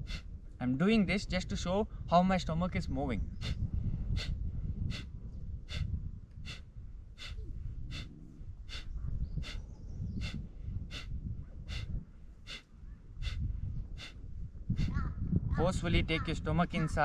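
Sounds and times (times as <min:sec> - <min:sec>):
forceful nasal exhalations: 0:04.2 - 0:05.1, 0:05.7 - 0:05.9, 0:07.2 - 0:09.6, 0:10.2 - 0:11.1, 0:11.7 - 0:13.4, 0:14.0 - 0:14.2.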